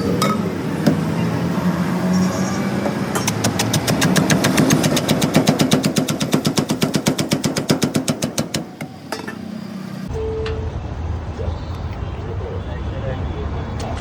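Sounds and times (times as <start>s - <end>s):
rapid even tapping: 3.2s - 8.6s.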